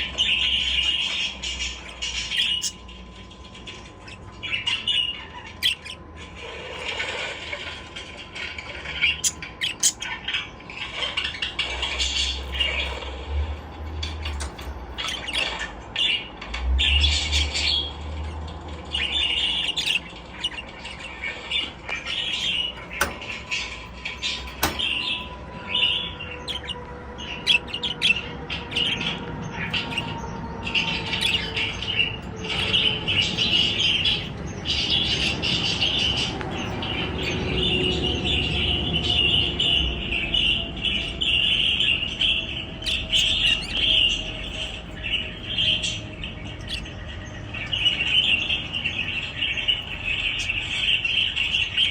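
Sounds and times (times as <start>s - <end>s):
budgerigars chirping: 0.0s - 13.2s, 14.0s - 16.3s, 17.1s - 51.9s
sharp clicks: 22.2s - 25.2s.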